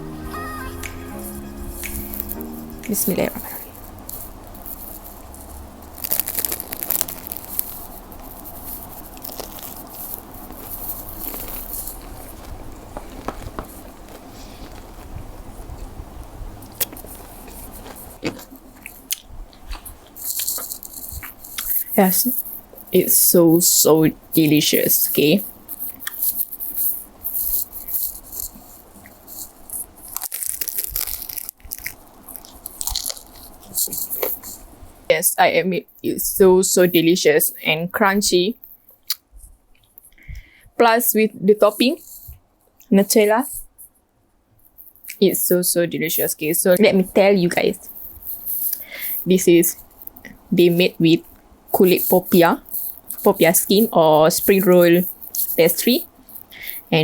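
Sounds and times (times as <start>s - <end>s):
crispy pastry crunching: 1.8s - 16.0s, 16.6s - 34.8s, 44.7s - 57.0s.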